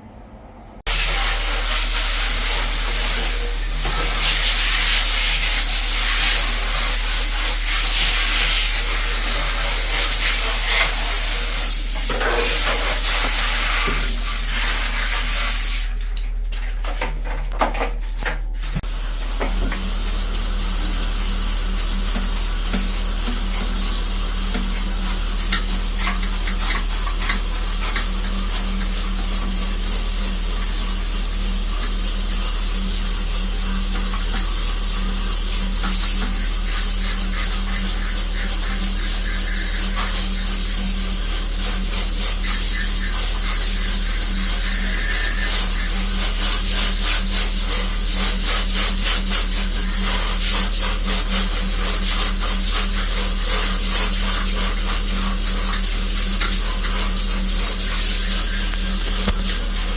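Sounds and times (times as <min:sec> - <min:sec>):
water spraying hiss: 0:00.9 - 0:15.9, 0:18.8 - 0:59.9
sprayer motor humming: 0:18.8 - 0:59.9.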